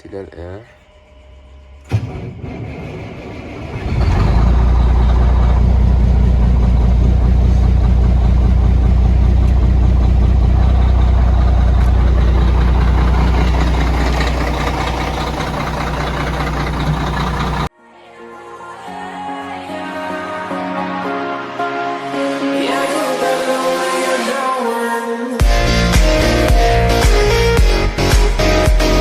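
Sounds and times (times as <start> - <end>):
truck diesel engine idling: 3.4 - 17.7.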